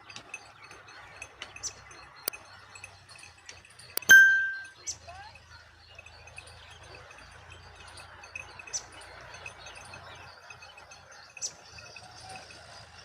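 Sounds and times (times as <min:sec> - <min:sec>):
sharp high-pitched chirps: 0:04.0 - 0:04.9
small bird chirps: 0:04.0 - 0:06.9.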